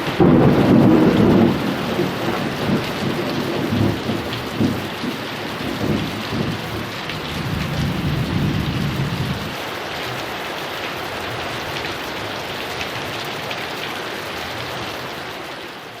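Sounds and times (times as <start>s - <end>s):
thunder rumble: 0.0s - 9.6s
heavy rain: 0.0s - 16.0s.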